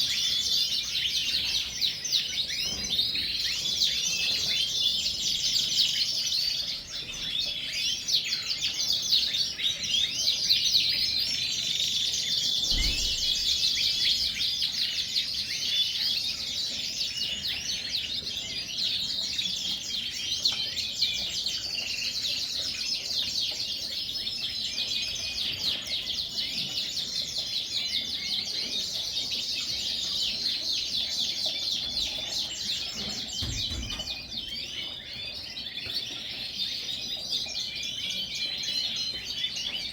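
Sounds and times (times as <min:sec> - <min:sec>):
canaries singing and chirping: 0:00.0 - 0:39.9
low thump: 0:12.7 - 0:13.6.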